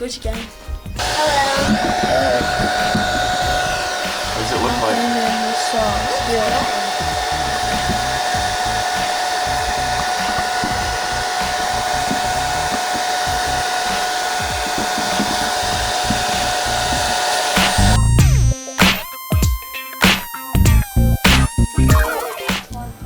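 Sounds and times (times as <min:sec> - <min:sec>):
hot-air blower running: 0:01.0 - 0:18.2.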